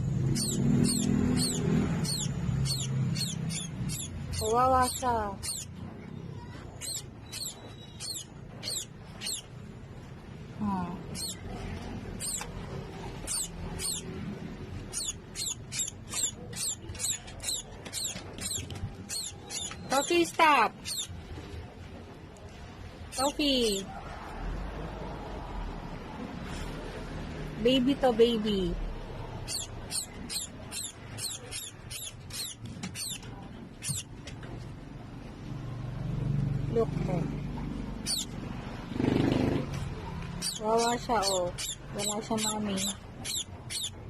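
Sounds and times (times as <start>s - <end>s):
nestling bird chirping: 0.2s - 9.6s, 11.0s - 21.2s, 23.1s - 23.8s, 29.4s - 34.2s, 38.0s - 38.4s, 40.3s - 44.0s.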